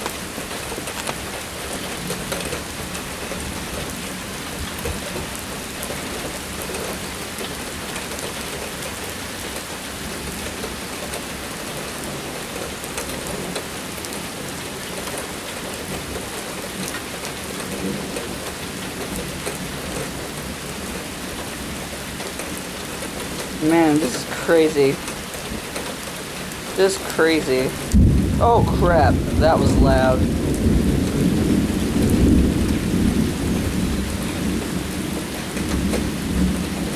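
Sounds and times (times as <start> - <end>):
heavy rain falling: 0.0 - 36.9
low thunder rumbling: 27.7 - 36.9.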